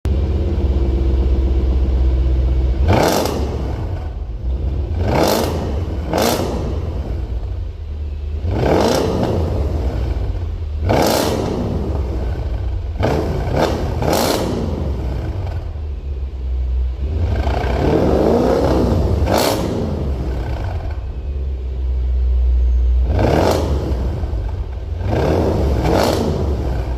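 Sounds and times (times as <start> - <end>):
car engine idling and revving: 0.1 - 26.9.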